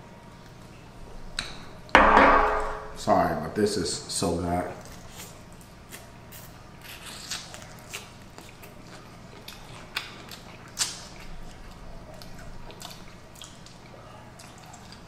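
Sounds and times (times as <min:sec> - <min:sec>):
chewing with crunches: 0:04.8 - 0:15.0.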